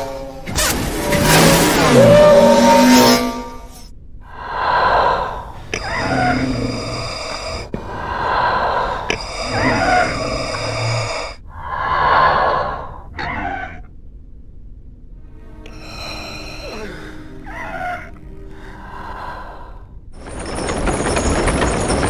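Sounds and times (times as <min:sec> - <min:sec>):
mechanical breathing through respirator: 0:04.3 - 0:13.2, 0:15.5 - 0:20.0.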